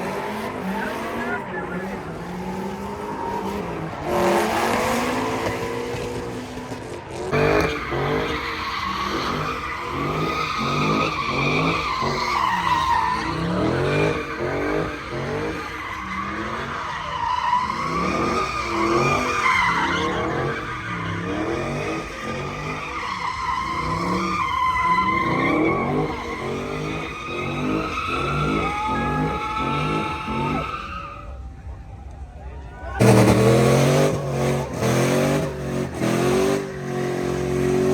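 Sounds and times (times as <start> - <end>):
car engine revving: 0.0 - 31.5, 32.9 - 37.9
tyres spinning and squealing: 0.0 - 37.9.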